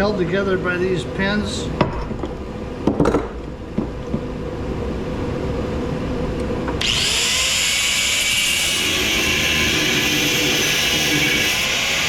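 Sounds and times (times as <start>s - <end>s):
steady low hum: 0.0s - 7.0s
power tool whirring: 6.8s - 12.0s.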